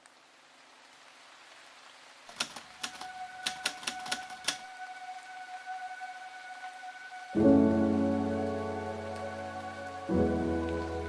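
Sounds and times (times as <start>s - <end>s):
sharp clicks: 2.3s - 4.7s.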